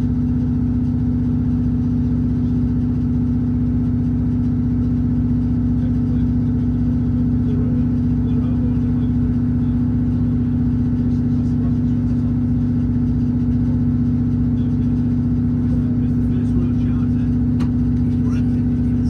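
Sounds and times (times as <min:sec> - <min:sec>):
train diesel engine humming: 0:15.5 - 0:19.0.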